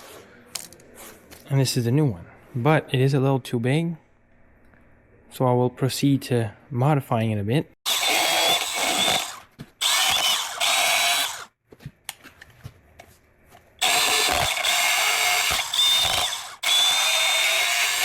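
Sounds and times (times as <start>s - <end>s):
power tool high whine: 7.9s - 11.5s, 13.8s - 18.0s.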